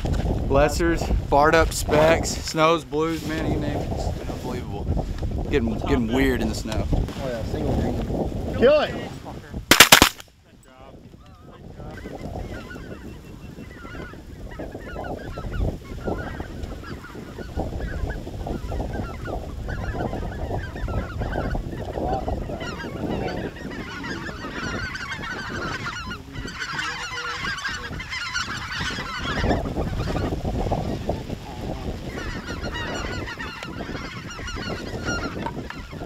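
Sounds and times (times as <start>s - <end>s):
wind rumble on microphone: 0.0s - 9.7s, 10.4s - 36.0s
geese honking: 11.9s - 36.0s.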